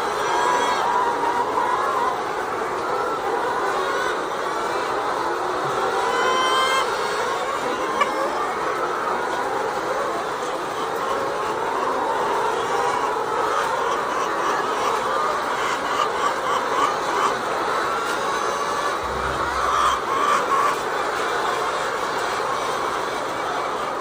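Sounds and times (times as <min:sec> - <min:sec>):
hens clucking: 0:00.0 - 0:24.0
low rumble: 0:19.0 - 0:20.7.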